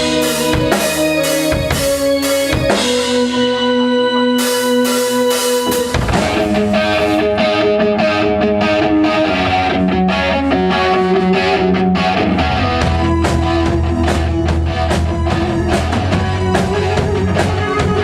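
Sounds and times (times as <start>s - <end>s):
drum beat: 0.0s - 3.4s, 4.4s - 7.2s, 12.8s - 18.0s
bass guitar: 0.0s - 18.0s
distorted electric guitar: 0.0s - 18.0s.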